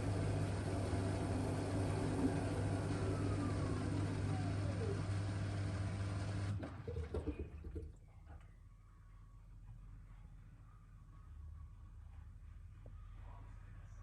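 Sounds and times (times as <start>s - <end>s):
washing machine humming and whining: 0.0s - 8.3s.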